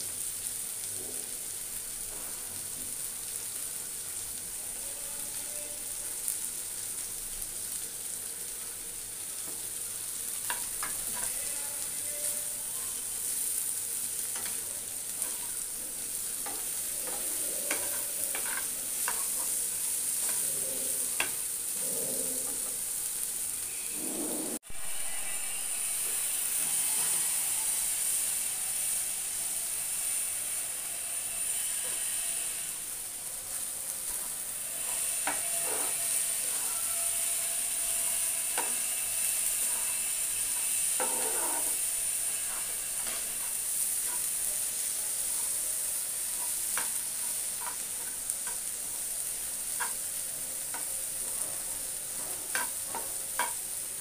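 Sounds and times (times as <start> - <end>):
fish sizzling in a pan: 0.0 - 54.0
steel spatula scraping a pan: 10.4 - 22.8, 23.7 - 53.7.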